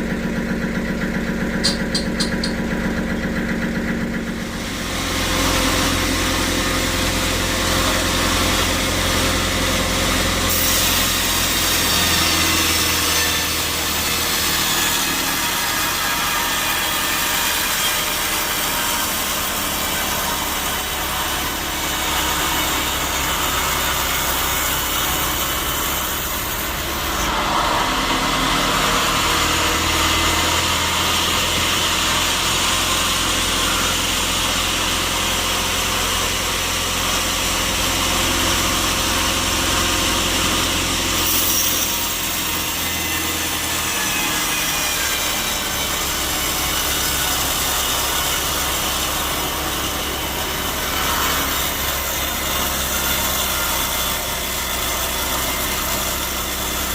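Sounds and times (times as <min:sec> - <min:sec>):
steady motor hum: 0:00.0 - 0:41.2
saw cutting through log: 0:00.0 - 0:56.9.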